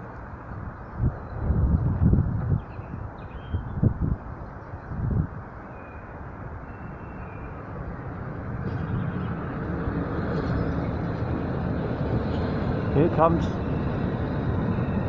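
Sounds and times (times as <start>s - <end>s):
train rumbling: 4.2s - 15.0s.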